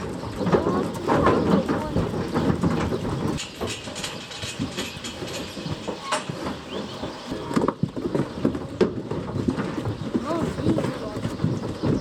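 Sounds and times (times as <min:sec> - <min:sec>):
mechanical clatter and rattle: 0:00.0 - 0:06.7.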